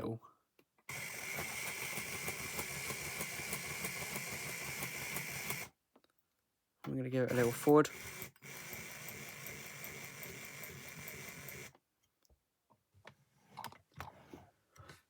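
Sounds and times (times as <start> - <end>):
model train motor whirring: 0.9 - 5.7, 7.3 - 11.7.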